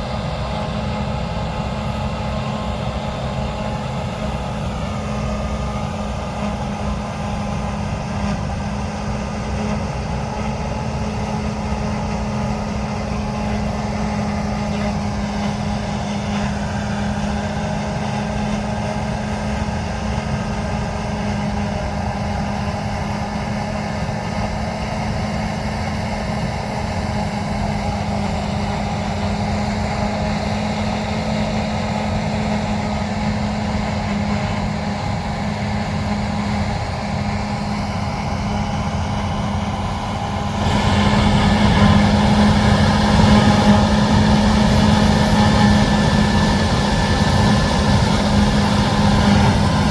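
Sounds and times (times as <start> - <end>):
heavy diesel machinery running: 0.0 - 49.9.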